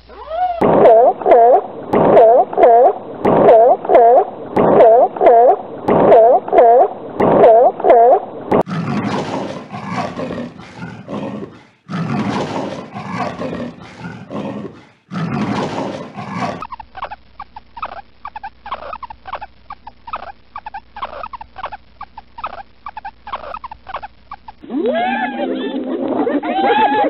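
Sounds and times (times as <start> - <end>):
leopard rasping roar: 8.6 - 16.6
guinea pigs squeaking: 16.6 - 25.8.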